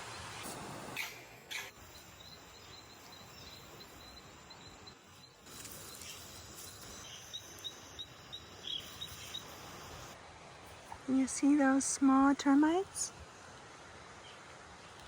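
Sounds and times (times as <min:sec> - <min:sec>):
insects droning and chirping: 0:00.5 - 0:10.2.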